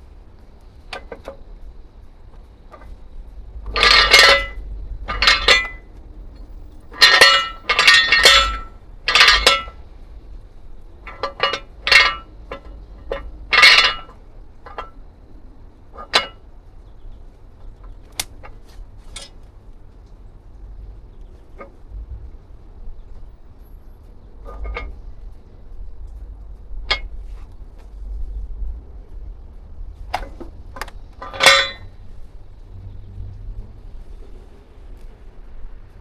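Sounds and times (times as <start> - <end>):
metal objects clanking: 3.6 - 9.8, 11.0 - 15.0, 16.0 - 16.4, 24.4 - 25.0, 31.2 - 32.0.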